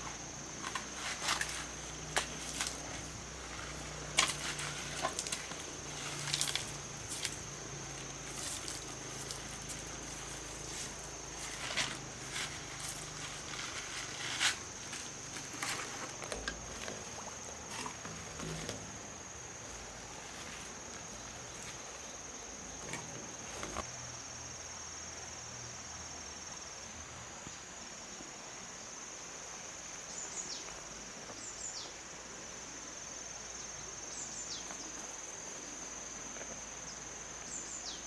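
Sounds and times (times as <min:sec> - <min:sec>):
high-pitched insect trill: 0:00.0 - 0:26.7.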